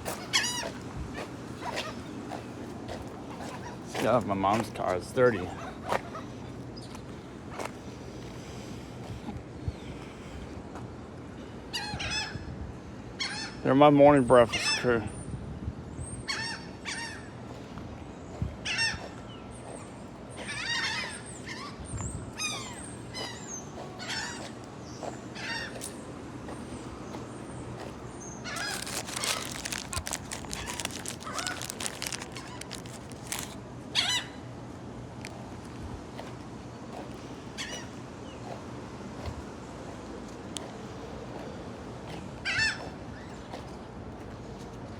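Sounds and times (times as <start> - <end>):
gulls calling: 28.2 - 34.4.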